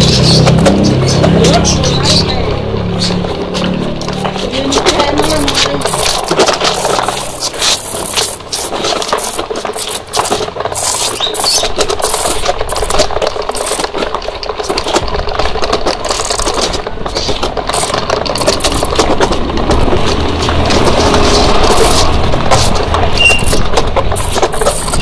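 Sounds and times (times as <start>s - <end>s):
truck engine rattling: 0.0s - 25.0s.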